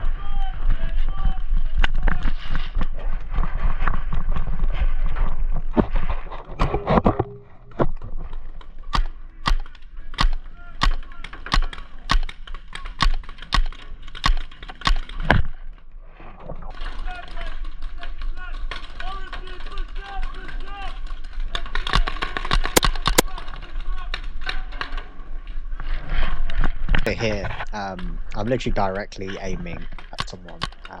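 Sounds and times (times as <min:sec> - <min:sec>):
movement and rustling: 0:00.0 - 0:31.0
paintball marker popping: 0:21.9 - 0:23.2.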